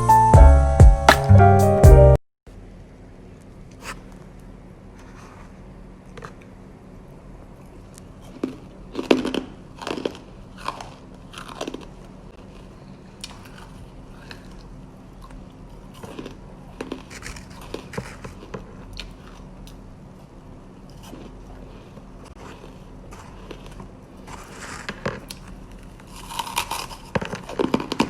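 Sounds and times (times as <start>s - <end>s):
person crunching hard food: 7.7s - 28.0s.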